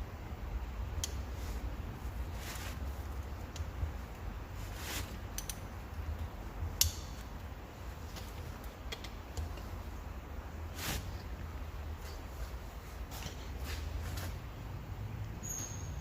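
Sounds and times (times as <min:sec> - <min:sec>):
low steady hum: 0:00.0 - 0:16.0
wrench clicking on metal: 0:05.3 - 0:05.7.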